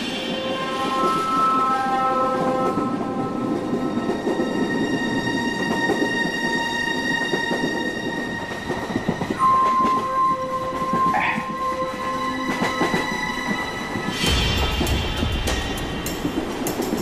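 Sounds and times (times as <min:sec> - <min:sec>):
train clattering on rails: 0:00.0 - 0:17.0.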